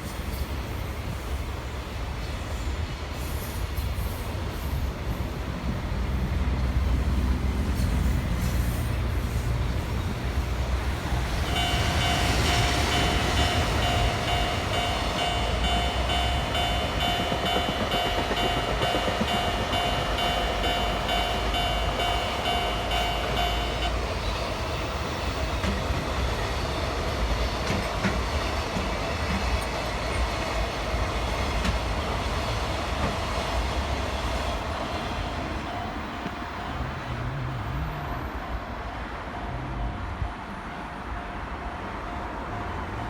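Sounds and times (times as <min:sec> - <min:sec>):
train wheels clacking over rail joints: 0:11.0 - 0:24.0, 0:25.3 - 0:35.3
level crossing alarm two-tone ringing: 0:11.4 - 0:24.0.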